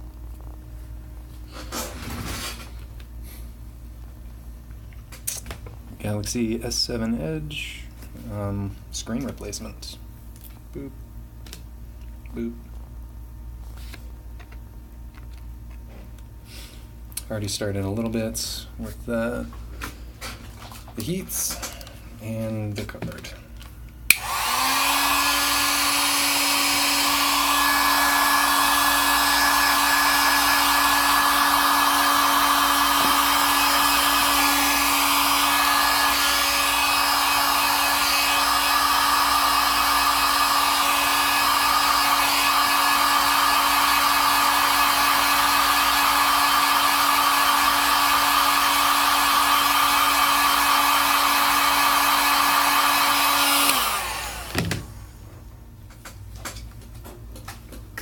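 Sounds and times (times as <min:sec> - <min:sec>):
heat gun blowing air: 0:24.1 - 0:55.0.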